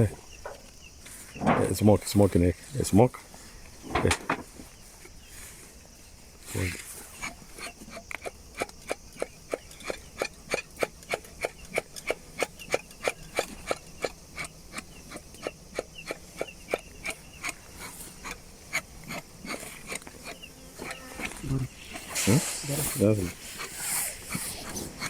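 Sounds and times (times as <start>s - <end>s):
bellows squeaky air puffs: 19.5s - 25.0s.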